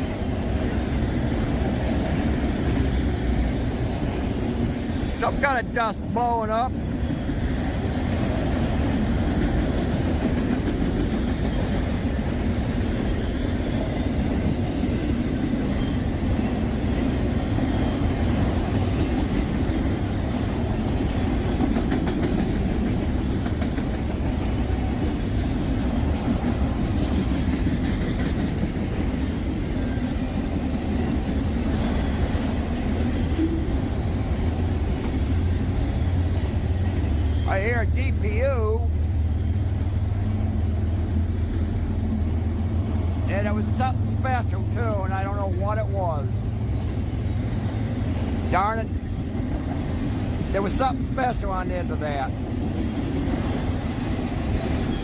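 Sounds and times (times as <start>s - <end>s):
train clickety-clack: 0.0s - 55.0s
train wheels on rails: 0.0s - 55.0s.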